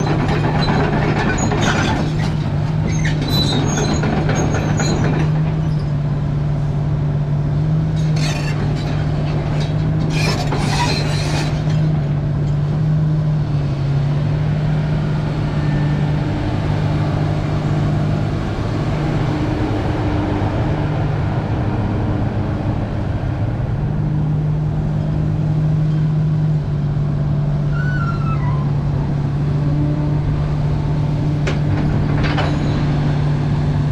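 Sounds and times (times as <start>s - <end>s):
clinks and squeaks: 0.0s - 6.0s, 8.0s - 12.0s, 27.7s - 28.8s, 31.4s - 33.2s
excavator diesel engine running: 0.0s - 33.9s.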